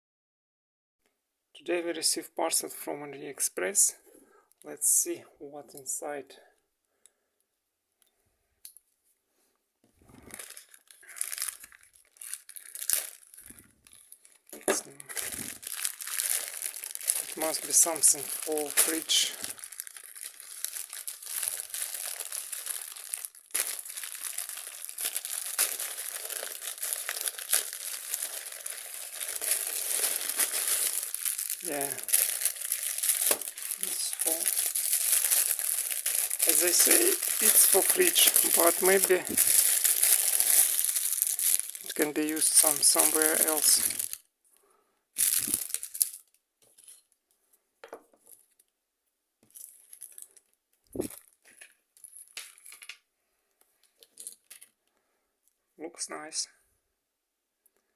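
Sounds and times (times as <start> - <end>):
plastic packaging crinkling: 10.1 - 44.3, 45.2 - 47.1, 49.5 - 53.0, 53.8 - 54.8.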